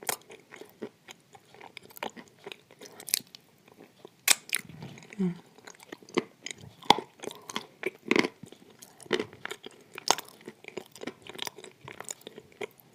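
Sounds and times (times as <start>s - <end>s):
chewing crunchy clay: 0.0s - 12.9s.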